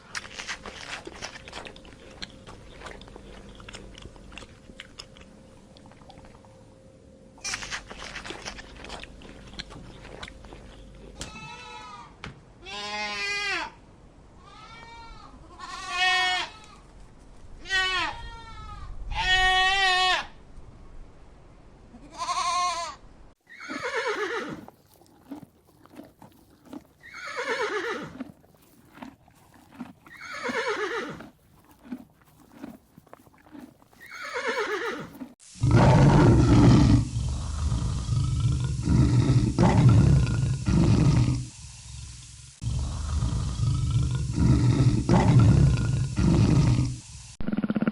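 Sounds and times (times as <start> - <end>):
loud low animal roar: 35.6 - 41.5, 42.6 - 47.0.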